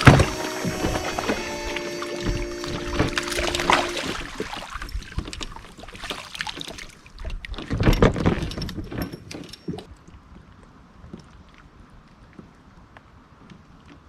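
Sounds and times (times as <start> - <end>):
music: 0.0 - 4.2
gear clattering on a kayak: 3.0 - 9.9.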